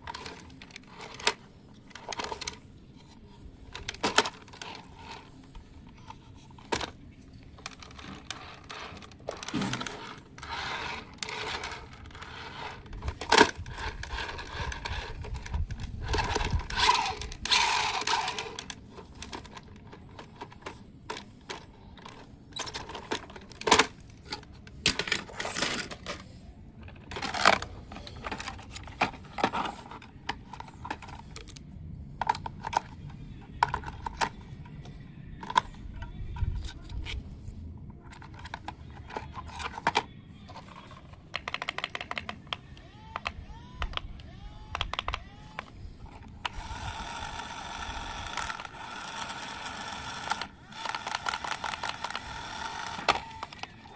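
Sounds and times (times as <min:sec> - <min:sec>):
small objects clicking and rattling: 0:06.6 - 0:24.0, 0:46.4 - 0:53.9.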